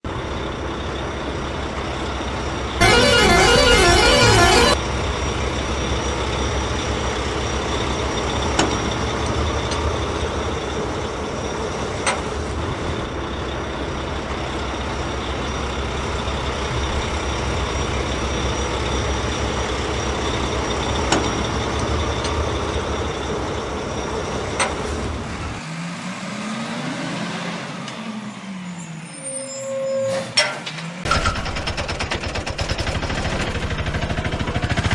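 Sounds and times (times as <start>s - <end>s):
loud horn blast: 2.8s - 4.8s
sweeping rise-and-fall sound: 2.8s - 4.8s.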